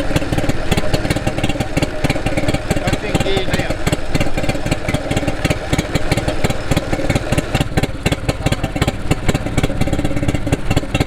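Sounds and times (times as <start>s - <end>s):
two-stroke marine engine running: 0.0s - 11.0s.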